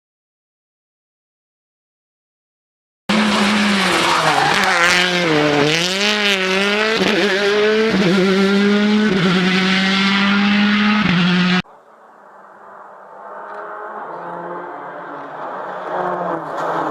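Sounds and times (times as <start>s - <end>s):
rally car engine revving: 3.1s - 11.6s, 13.1s - 16.9s.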